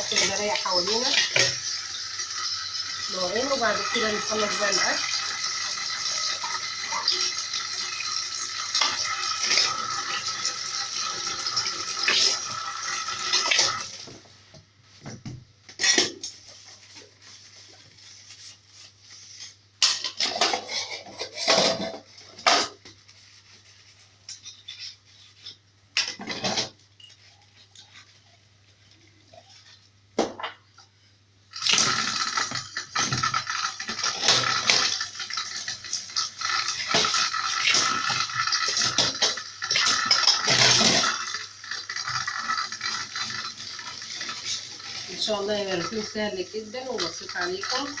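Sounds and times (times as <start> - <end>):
kitchen tap running: 0.0 - 14.3, 31.5 - 48.0
dishes and pans clattering: 19.8 - 22.8.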